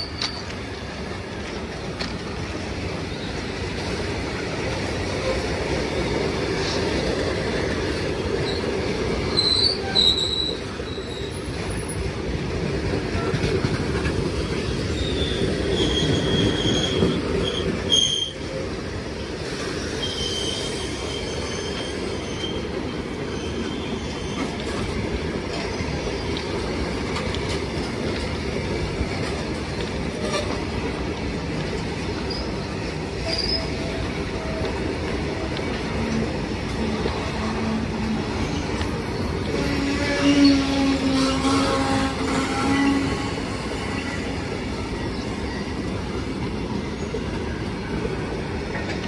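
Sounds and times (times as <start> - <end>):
train wheels rumbling on rail: 0.0 - 49.0
high wheel squeals: 9.3 - 11.9, 14.9 - 18.4, 19.8 - 22.7.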